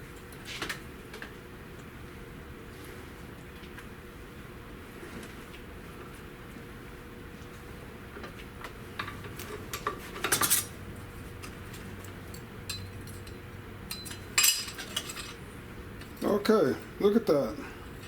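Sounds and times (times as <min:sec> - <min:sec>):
metal clinks and scrapes: 0:12.7 - 0:15.4.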